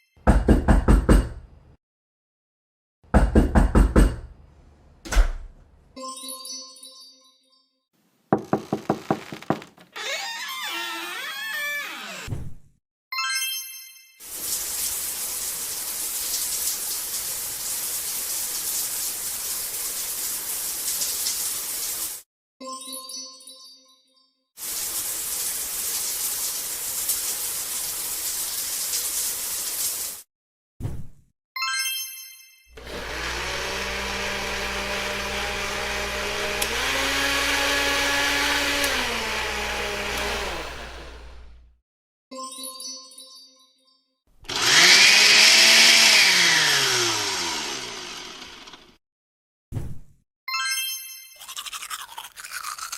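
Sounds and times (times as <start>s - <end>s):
running water spray: 14.2s - 22.2s, 24.6s - 30.2s
kitchen blender running: 32.8s - 41.7s, 44.5s - 49.0s.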